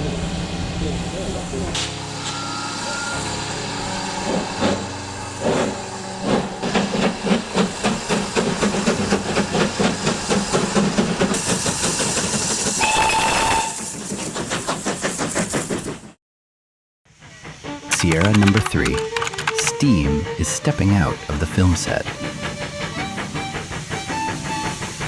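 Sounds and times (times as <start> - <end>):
steam whistle blast: 12.8 - 14.0
steam locomotive exhaust chuffs: 21.7 - 25.0
steam hissing: 22.0 - 25.0.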